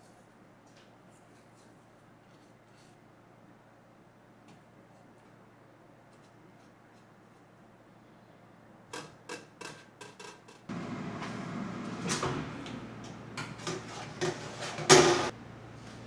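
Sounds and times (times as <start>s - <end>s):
dishes clattering: 13.4s - 15.3s
utensils and dishes clicking: 13.4s - 15.3s.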